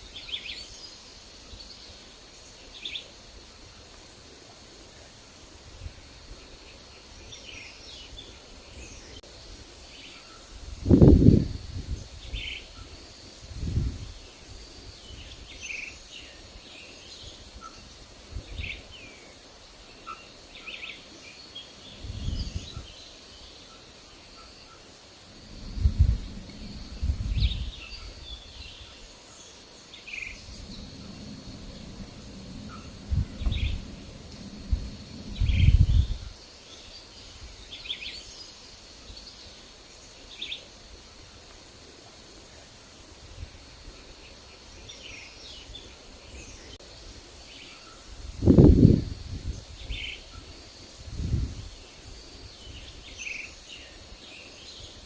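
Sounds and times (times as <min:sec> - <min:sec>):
wind gusts on microphone: 0:10.6 - 0:15.7, 0:17.2 - 0:19.1, 0:21.8 - 0:23.0, 0:25.3 - 0:29.1, 0:30.1 - 0:36.5, 0:48.1 - 0:53.2.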